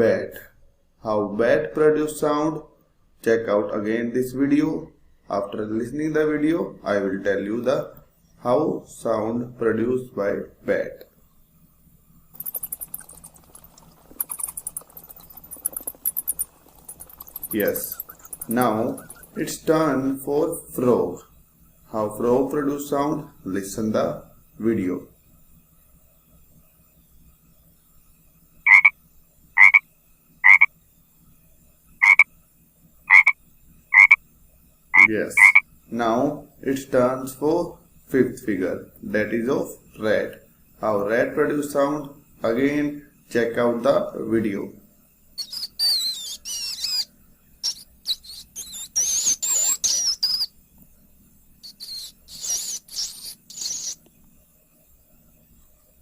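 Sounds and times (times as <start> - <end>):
frog croaking: 12.3 - 20.2, 28.7 - 29.0, 29.6 - 29.8, 30.4 - 30.7, 32.0 - 32.3, 33.1 - 34.2, 34.9 - 35.7, 45.4 - 50.5, 51.6 - 54.0
rat squeaking: 12.3 - 20.2, 28.7 - 28.9, 29.6 - 29.8, 30.4 - 30.7, 32.0 - 32.2, 33.1 - 33.4, 34.0 - 34.2, 35.0 - 35.6, 45.4 - 50.5, 51.6 - 54.0.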